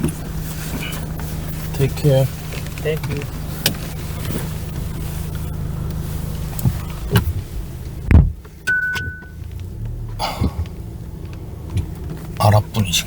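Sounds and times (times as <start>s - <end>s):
car cabin hum: 0.0s - 13.0s
car door thud: 8.0s - 9.4s
short electronic beep: 8.7s - 9.4s.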